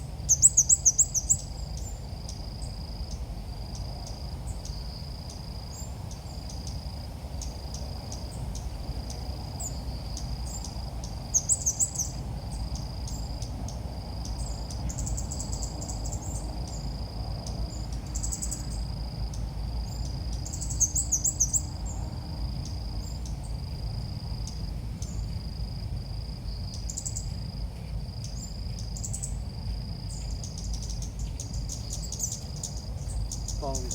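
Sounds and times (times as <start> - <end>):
birds singing warbling phrases: 30.4 - 33.9.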